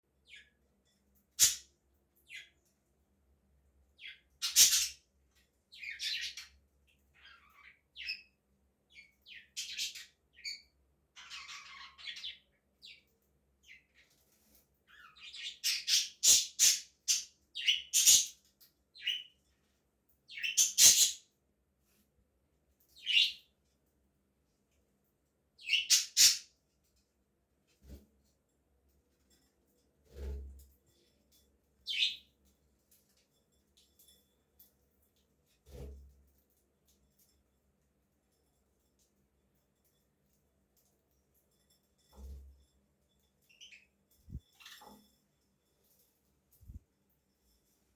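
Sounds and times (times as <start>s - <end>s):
budgerigars chirping: 25.6s - 26.4s.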